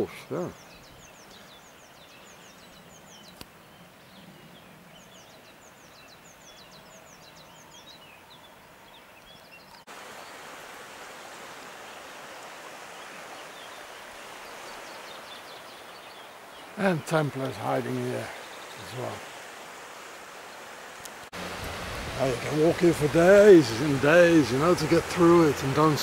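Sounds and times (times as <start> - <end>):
small birds singing: 0.0 - 26.0
steady rushing noise: 21.3 - 26.0.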